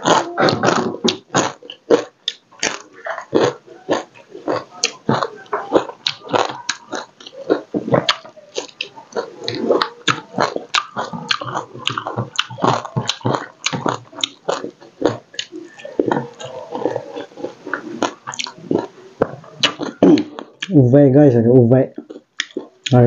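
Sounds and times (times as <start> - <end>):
person chewing food: 0.0 - 20.8, 21.9 - 23.0.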